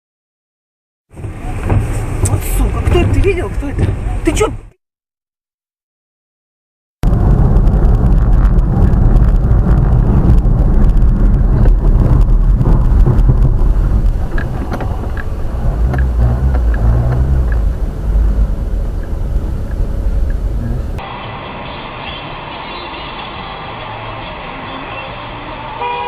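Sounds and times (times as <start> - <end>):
car engine rumble: 1.1 - 4.7, 7.0 - 26.0
road noise: 1.1 - 4.8, 7.0 - 26.0.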